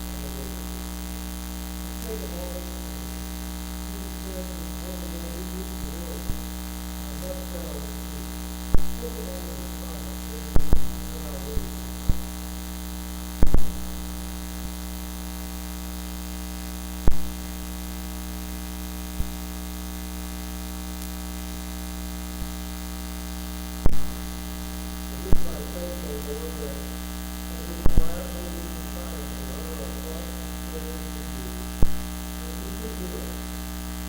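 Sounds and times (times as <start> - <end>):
electrical mains hum: 0.0 - 34.0
sharp pops and crackles: 13.4 - 14.8, 17.0 - 17.4, 23.8 - 24.7, 31.7 - 32.2.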